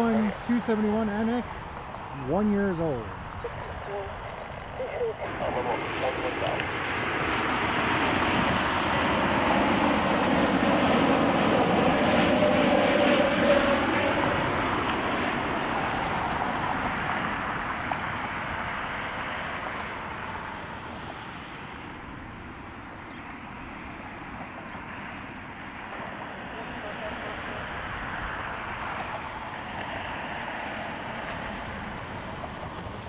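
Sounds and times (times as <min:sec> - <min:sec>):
jet engines roaring past: 0:00.0 - 0:33.0.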